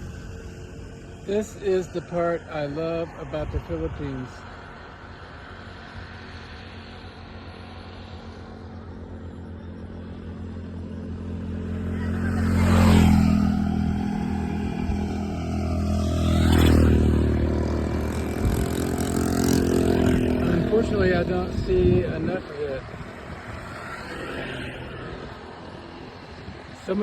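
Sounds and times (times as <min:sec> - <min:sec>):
vehicles passing close: 0:00.0 - 0:27.0
motorcycle engine running: 0:07.6 - 0:26.4.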